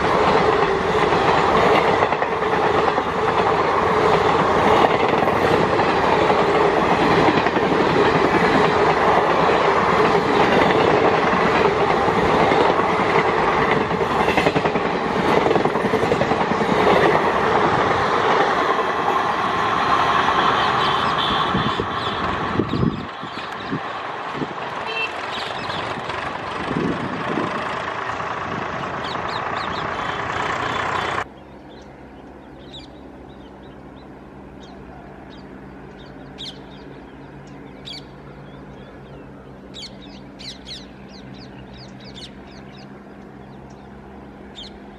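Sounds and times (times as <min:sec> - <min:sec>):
train wheels rushing on rails: 0:00.0 - 0:44.9
birds chirping: 0:20.8 - 0:24.0, 0:24.8 - 0:26.3, 0:28.8 - 0:44.9.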